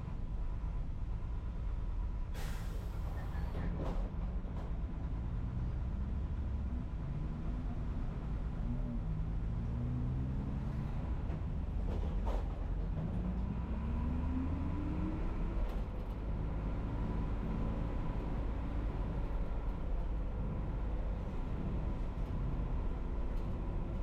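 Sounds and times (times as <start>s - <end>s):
bus engine rumbling: 0.0s - 24.0s.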